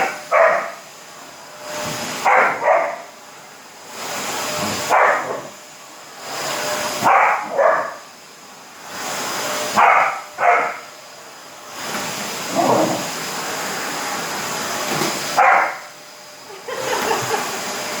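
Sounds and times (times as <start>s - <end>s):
puppy barking: 0.0s - 0.8s, 2.2s - 3.1s, 4.8s - 5.5s, 7.0s - 8.0s, 9.8s - 10.9s, 15.4s - 15.9s
vacuum cleaner whirring: 0.0s - 18.0s.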